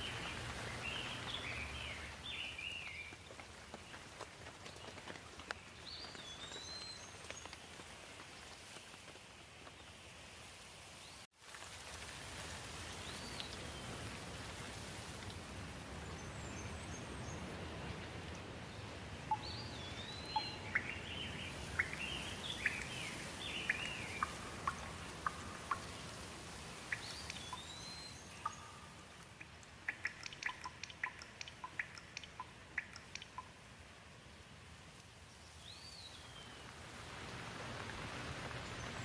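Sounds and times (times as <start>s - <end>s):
light rain hiss: 0.0s - 39.0s
bird calling: 19.3s - 26.0s
bird chirps: 19.3s - 26.0s, 26.9s - 33.5s
sharp ticks: 29.2s - 33.5s.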